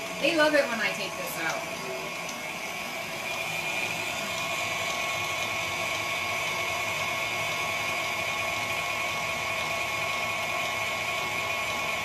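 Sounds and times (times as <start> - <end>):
electric shredder motor whining: 0.0 - 12.0.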